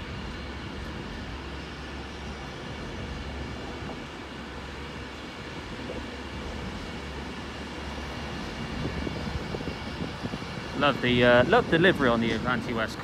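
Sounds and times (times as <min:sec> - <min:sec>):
electric train running: 0:00.0 - 0:13.0.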